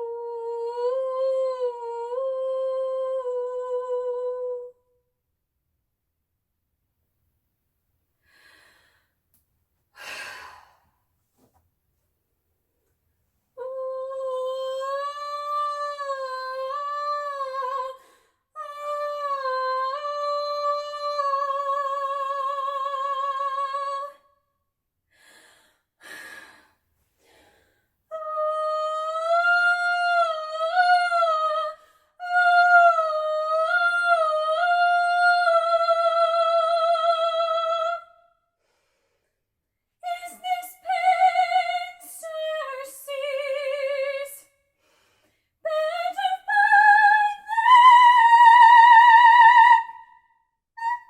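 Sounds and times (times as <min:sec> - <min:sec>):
singer breath: 0:08.2 - 0:09.2, 0:38.6 - 0:39.4, 0:44.7 - 0:45.6.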